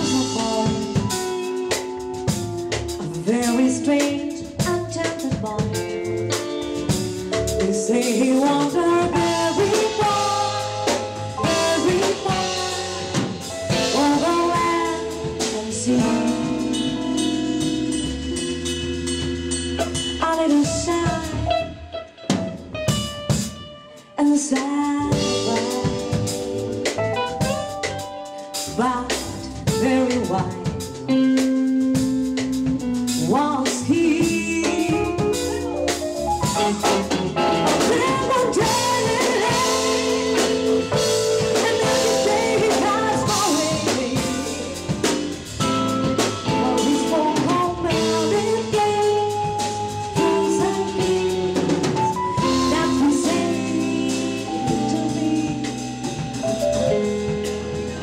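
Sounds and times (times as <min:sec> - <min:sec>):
drum kit: 0:00.0 - 0:58.0
jazz band playing: 0:00.0 - 0:58.0.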